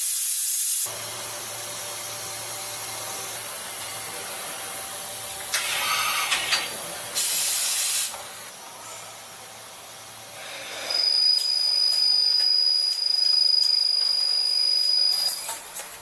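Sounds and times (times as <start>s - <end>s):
machine hissing: 0.0s - 8.5s, 10.2s - 15.8s
high-pitched machine whine: 8.8s - 15.6s.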